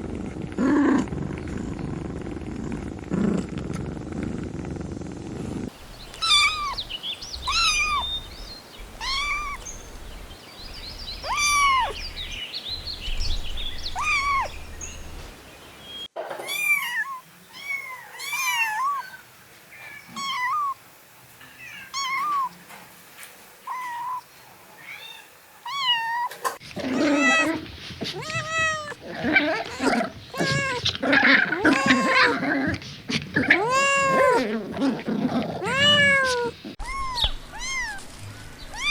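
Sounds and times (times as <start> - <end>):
young animal crying: 5.8 - 15.4, 16.4 - 19.2, 20.0 - 20.8, 21.7 - 22.5, 24.8 - 38.1.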